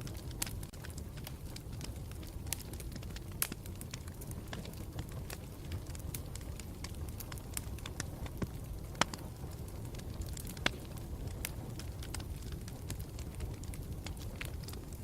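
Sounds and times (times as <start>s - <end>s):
campfire crackling: 0.0s - 15.0s
fire snapping loudly: 0.0s - 15.0s.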